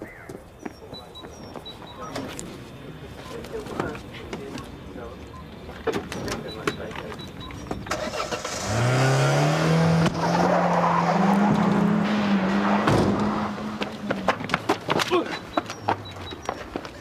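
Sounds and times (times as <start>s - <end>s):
car engine revving and accelerating: 7.9s - 14.6s.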